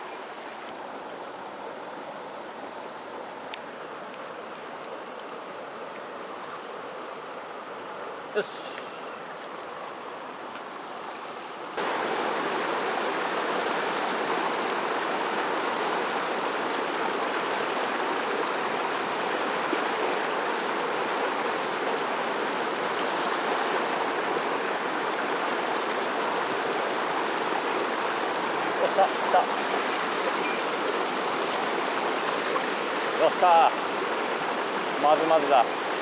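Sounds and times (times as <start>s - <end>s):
water rushing over rocks: 11.8s - 36.0s.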